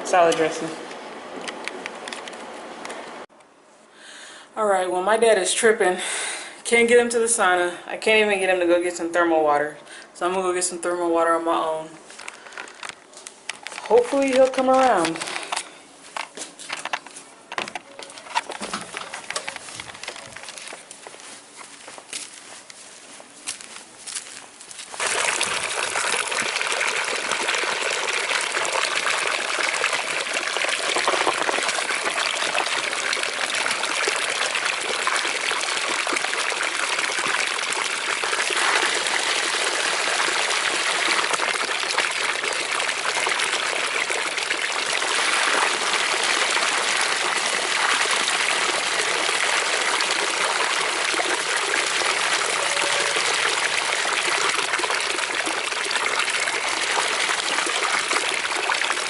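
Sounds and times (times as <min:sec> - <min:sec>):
water running and splashing: 0:24.9 - 0:59.0.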